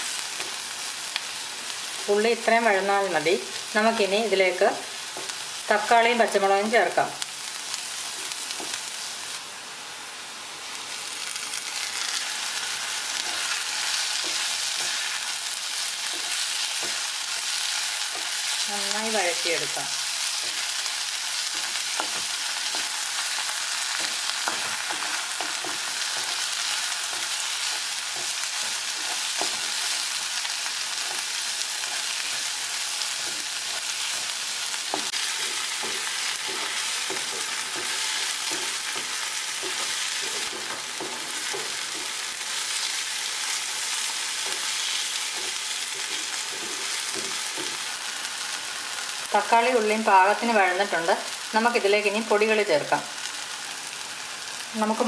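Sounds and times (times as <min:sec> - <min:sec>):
vegetables sizzling in oil: 0:00.0 - 0:55.0
spatula scraping and tapping: 0:16.1 - 0:17.1, 0:21.5 - 0:23.0, 0:24.0 - 0:30.0, 0:33.2 - 0:42.2, 0:44.4 - 0:47.9.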